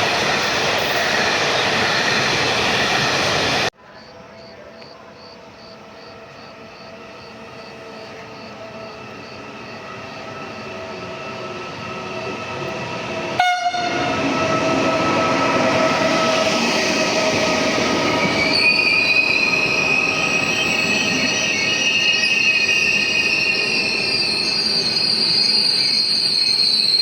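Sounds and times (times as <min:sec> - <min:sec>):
train rumble: 0:00.0 - 0:27.0
wheel squeal: 0:15.8 - 0:27.0.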